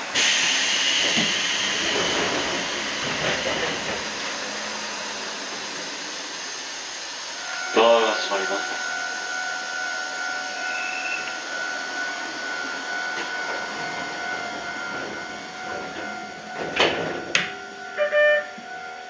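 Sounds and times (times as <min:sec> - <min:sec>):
train rumble and hiss: 0:00.0 - 0:19.0
steady whining tones: 0:02.2 - 0:19.0
short pulsed tone: 0:07.4 - 0:16.8, 0:17.5 - 0:19.0.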